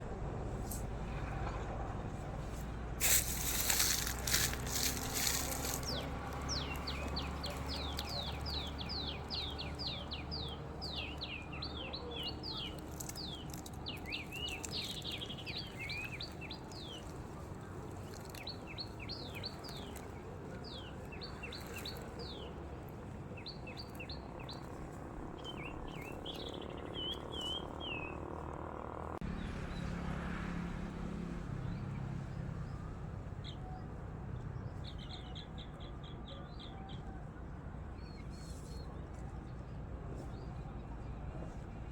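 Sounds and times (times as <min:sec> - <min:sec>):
small birds chirping: 0:03.0 - 0:30.0.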